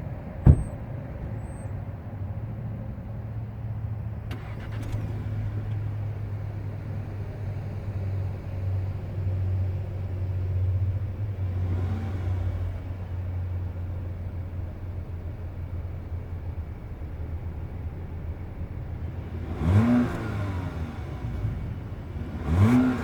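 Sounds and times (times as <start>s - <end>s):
car engine idling: 0.0s - 1.7s, 12.6s - 23.0s.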